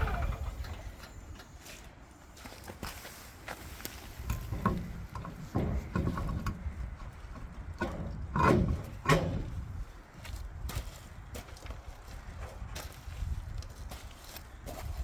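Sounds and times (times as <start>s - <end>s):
metal knocks and clanks: 4.3s - 9.8s.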